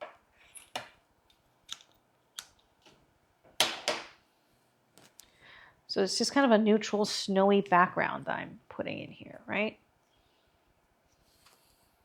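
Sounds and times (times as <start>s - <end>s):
stems clicking and rustling: 1.7s - 3.0s.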